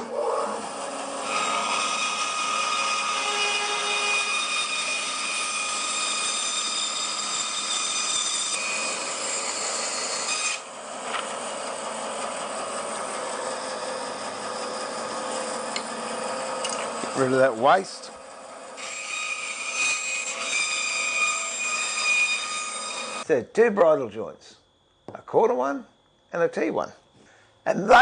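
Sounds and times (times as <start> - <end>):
bandsaw cutting timber: 0.0 - 17.9, 18.6 - 23.3.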